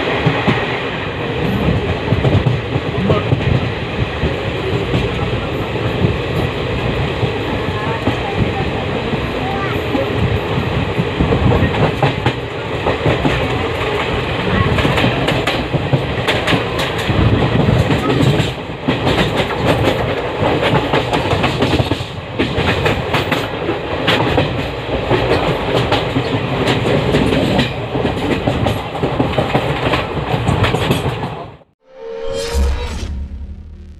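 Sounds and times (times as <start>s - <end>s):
train rumbling: 0.0s - 33.9s
swoosh sound effect: 31.8s - 33.9s.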